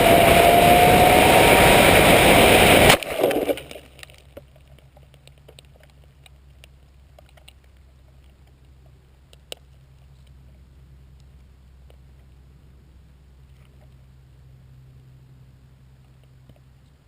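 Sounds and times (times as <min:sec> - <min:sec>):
motor whine: 0:00.0 - 0:03.0
rushing air: 0:00.0 - 0:03.7.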